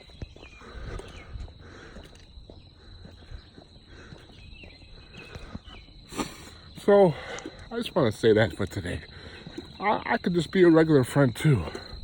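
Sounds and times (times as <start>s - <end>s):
low rumble of wind: 0.0s - 6.2s
footsteps: 0.0s - 7.9s.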